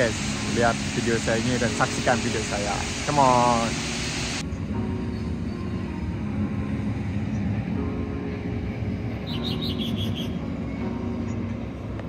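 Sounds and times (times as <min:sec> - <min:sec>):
small bird chirping: 0:09.2 - 0:10.4.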